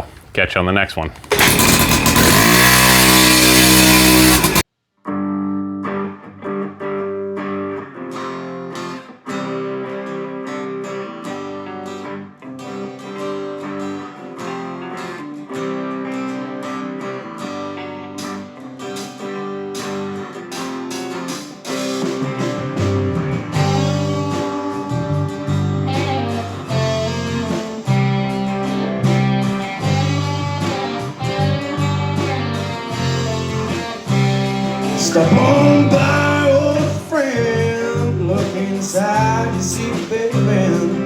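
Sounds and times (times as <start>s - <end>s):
loud burst of sound: 1.3s - 4.6s
plucked and strummed guitar music: 1.4s - 41.0s.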